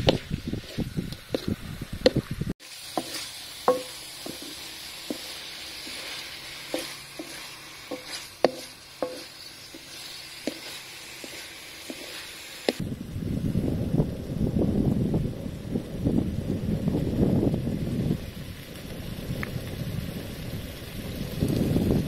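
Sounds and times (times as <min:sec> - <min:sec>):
wooden spatula scraping a wok: 0:00.0 - 0:12.8
food sizzling in oil: 0:00.0 - 0:12.9.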